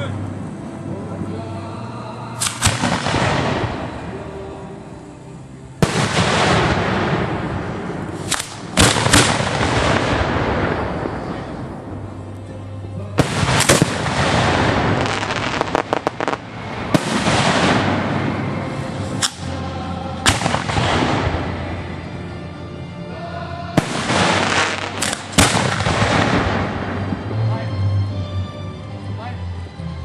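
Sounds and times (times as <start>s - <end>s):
fireworks bangs: 2.4s - 4.4s, 5.8s - 12.0s, 13.2s - 19.6s, 20.2s - 21.8s, 23.8s - 27.4s
fireworks crackles: 2.4s - 12.4s, 13.0s - 22.3s, 23.7s - 27.4s
fireworks rush: 2.4s - 12.4s, 13.0s - 22.1s, 23.6s - 27.6s.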